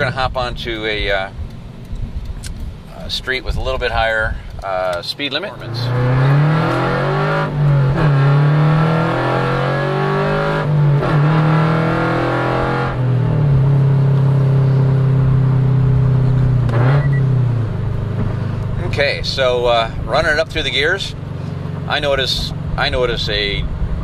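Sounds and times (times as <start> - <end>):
car engine accelerating through gears: 5.5 - 20.4.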